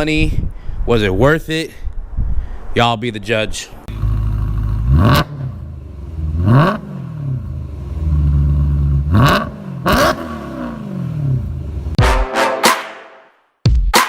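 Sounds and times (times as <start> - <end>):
car engine idling: 3.9 - 12.0
car engine revving: 3.9 - 12.0.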